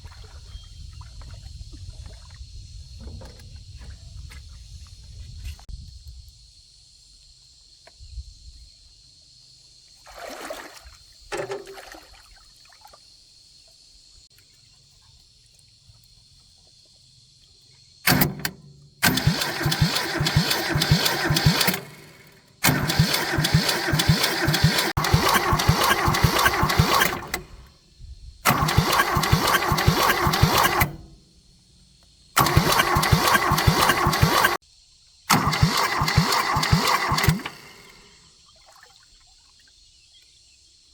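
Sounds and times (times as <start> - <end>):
tractor engine cranking: 18.0 - 27.7, 28.4 - 31.8, 32.4 - 34.6, 35.3 - 38.2.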